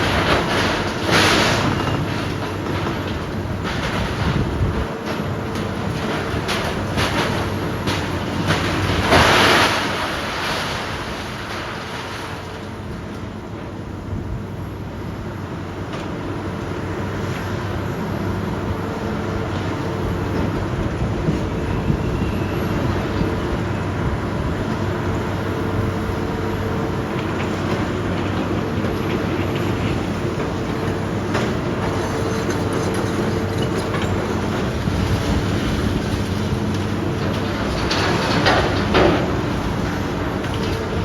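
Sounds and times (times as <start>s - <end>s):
knocks and clanks on debris: 0.0s - 12.4s, 27.2s - 40.9s
diesel engine running under load: 0.0s - 41.0s.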